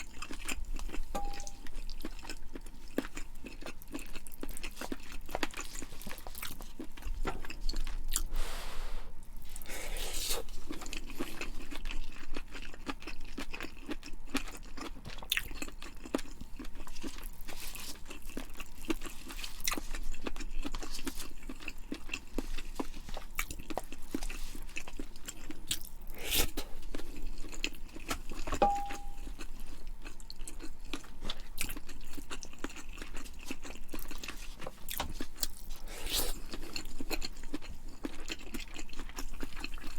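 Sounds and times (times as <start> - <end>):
person chewing food: 0.0 - 8.5, 9.3 - 39.9
short ringing ping: 1.2 - 1.6, 28.6 - 29.3.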